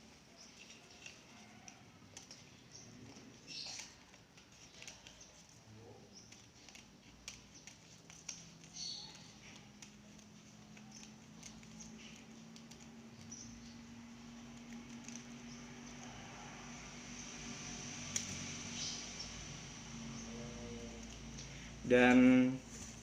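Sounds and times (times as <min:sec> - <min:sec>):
leaf rustling: 0:06.2 - 0:21.7
scissors snipping: 0:18.1 - 0:18.5.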